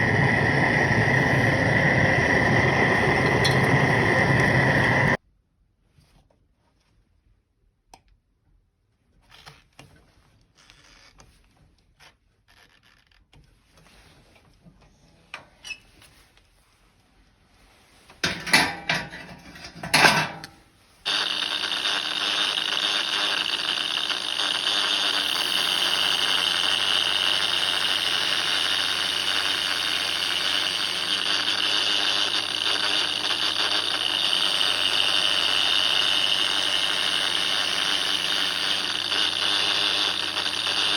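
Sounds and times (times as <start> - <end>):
power tool whining: 0.0 - 5.2, 21.0 - 40.9
metal clinking and scraping: 18.2 - 20.6.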